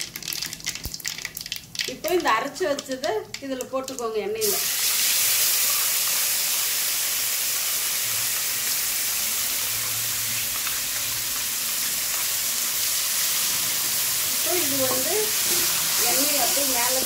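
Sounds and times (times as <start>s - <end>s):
paste sizzling in hot oil: 4.4s - 17.0s.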